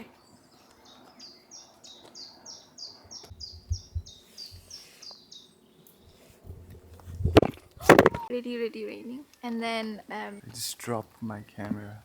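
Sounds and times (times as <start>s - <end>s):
songbird singing high falling notes: 0.0s - 5.8s.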